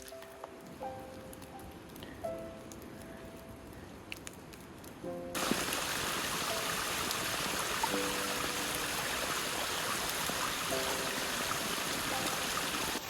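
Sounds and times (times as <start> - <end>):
stream water rushing: 5.4 - 13.0.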